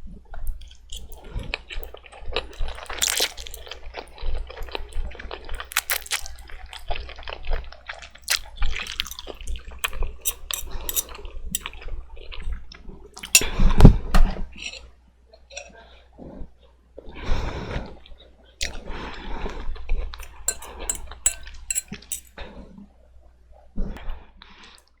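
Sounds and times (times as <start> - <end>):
chewing: 0.6 - 11.7, 13.2 - 13.5, 20.2 - 22.3
slurping noodles: 2.6 - 3.8.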